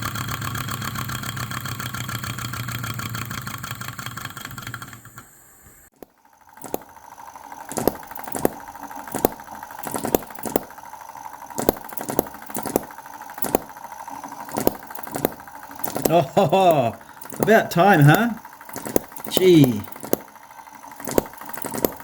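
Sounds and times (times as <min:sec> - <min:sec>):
light mechanical clatter: 0:00.0 - 0:22.0
small gas engine firing pops: 0:05.9 - 0:22.0.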